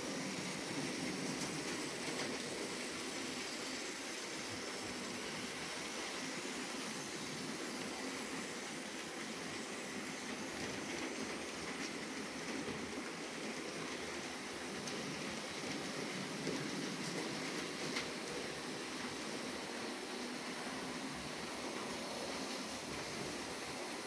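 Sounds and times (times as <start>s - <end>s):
model train motors whirring: 0.0s - 24.0s.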